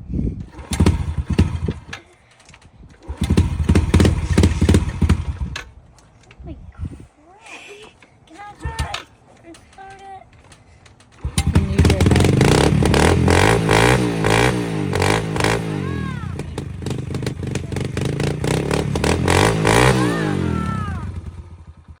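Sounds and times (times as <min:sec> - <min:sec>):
dirt bike engine revving: 0:00.4 - 0:02.4, 0:03.0 - 0:05.7, 0:11.1 - 0:22.0.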